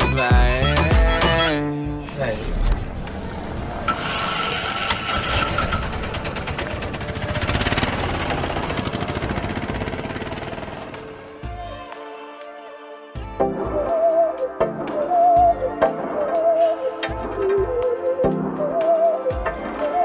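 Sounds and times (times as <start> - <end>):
motorcycle engine running: 4.1 - 11.4.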